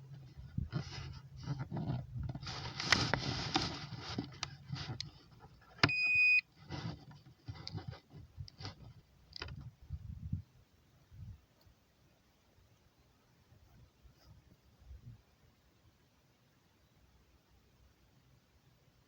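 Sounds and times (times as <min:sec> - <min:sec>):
rustling: 0:00.0 - 0:09.7
electronic beep: 0:05.9 - 0:06.4.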